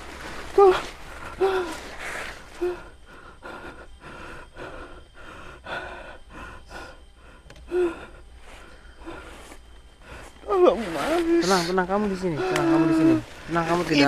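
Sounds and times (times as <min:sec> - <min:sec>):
person gasping and breathing hard: 0:07.6 - 0:08.2.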